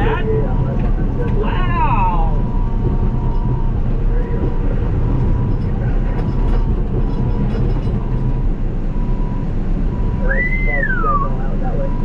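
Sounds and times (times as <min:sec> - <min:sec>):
steel tracks clattering: 0:00.0 - 0:08.7
bulldozer diesel engine running: 0:00.0 - 0:12.0
faint steady whine: 0:00.0 - 0:12.0.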